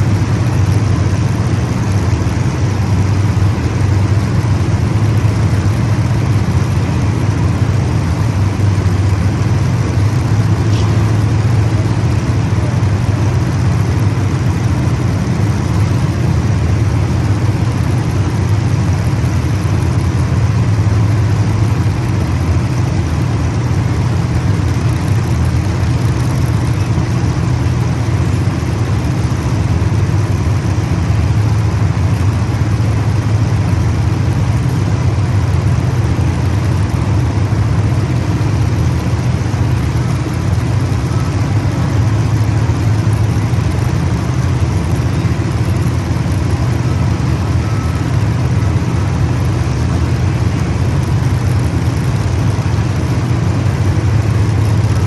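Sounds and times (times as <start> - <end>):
race car engines droning: 0.0 - 55.0.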